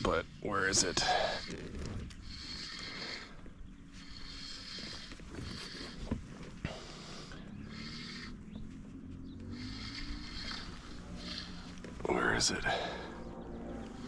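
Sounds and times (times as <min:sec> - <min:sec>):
fishing reel winding hiss: 0:01.2 - 0:03.1, 0:09.5 - 0:11.8.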